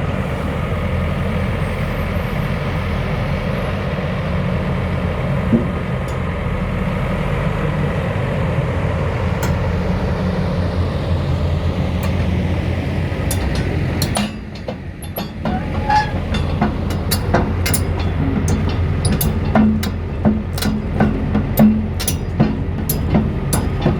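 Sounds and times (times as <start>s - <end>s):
excavator diesel engine droning: 0.0s - 23.9s
sharp metallic clicks and knocks: 9.4s - 9.9s, 11.8s - 23.9s.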